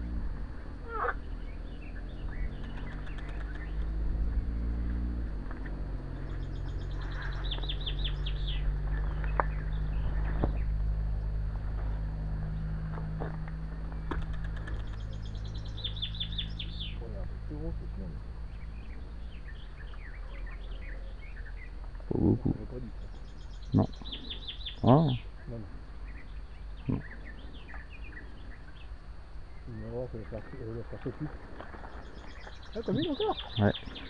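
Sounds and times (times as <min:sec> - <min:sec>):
low engine drone: 0:00.0 - 0:34.0
songbird singing: 0:00.0 - 0:34.0
faint sharp clicks: 0:02.6 - 0:03.9, 0:13.4 - 0:15.1.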